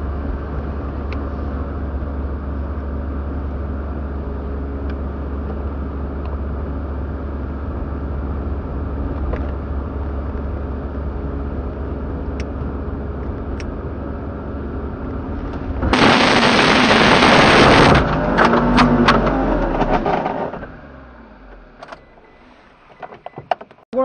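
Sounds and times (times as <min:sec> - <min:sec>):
car engine running: 0:00.0 - 0:23.0
loud rush of noise: 0:15.2 - 0:18.7.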